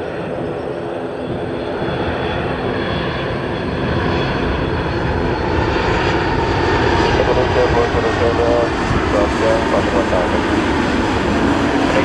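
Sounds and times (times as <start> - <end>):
airliner engines rushing: 0.0 - 12.0.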